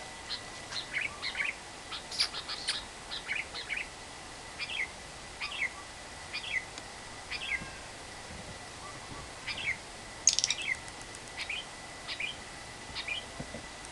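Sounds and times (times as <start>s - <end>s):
lovebird chirping: 0.0s - 3.9s, 4.6s - 6.7s, 7.3s - 7.6s, 8.8s - 10.8s, 11.4s - 12.4s, 13.0s - 13.3s.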